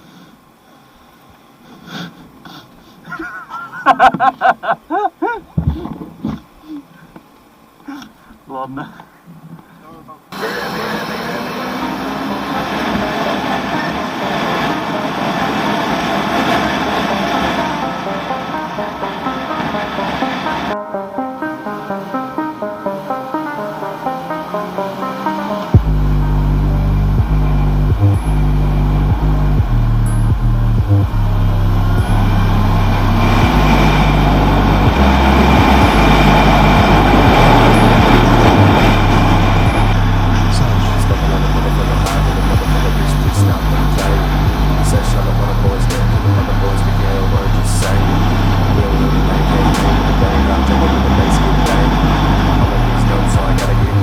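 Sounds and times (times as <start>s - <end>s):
music with deep bass: 11.8s - 54.0s
motorcycle engine rumble: 25.8s - 54.0s.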